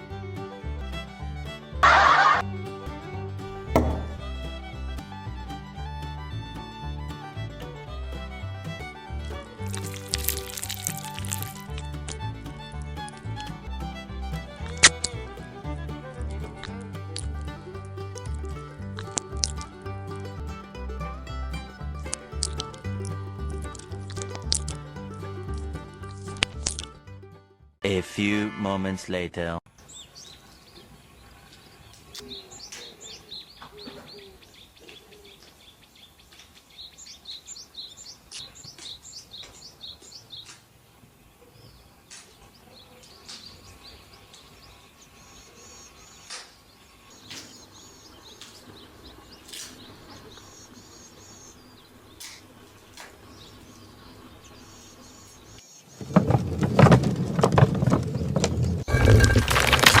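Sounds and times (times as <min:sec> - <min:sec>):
small birds chirping: 0:03.4 - 0:16.2, 0:29.7 - 0:56.2
clicks: 0:52.2 - 0:53.3.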